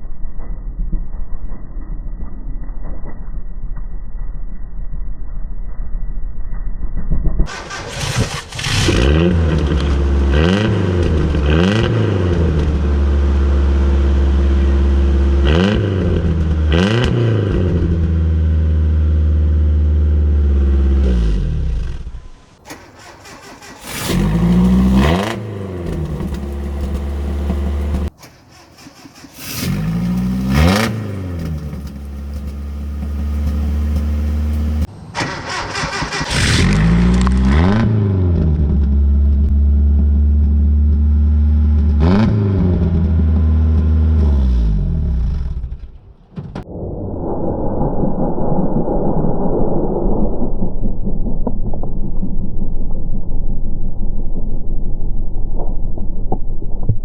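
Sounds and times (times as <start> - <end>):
truck engine revving: 7.5 - 46.0.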